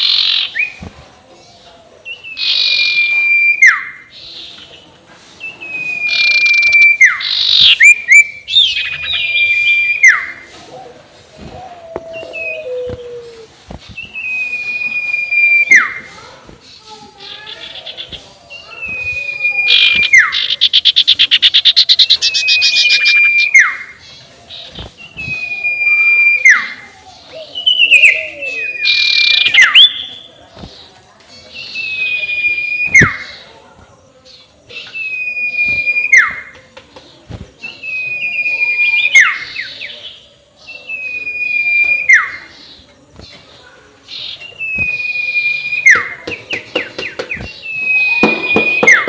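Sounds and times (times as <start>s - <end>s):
owl whistled call: 5.6s - 10.5s, 11.5s - 13.5s, 18.9s - 23.9s, 27.6s - 30.0s, 40.7s - 42.4s, 44.6s - 46.2s.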